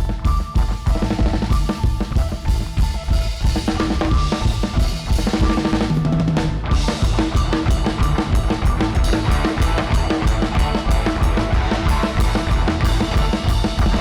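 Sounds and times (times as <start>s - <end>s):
drum kit kick and snare: 0.0s - 14.0s
rock band playing: 0.0s - 14.0s.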